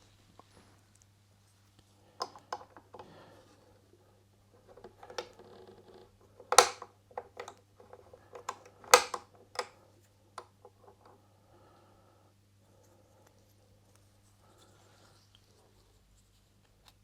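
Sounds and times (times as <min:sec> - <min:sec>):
faint steady hum: 0:00.0 - 0:17.0
small hard parts clicking and knocking: 0:04.6 - 0:09.8.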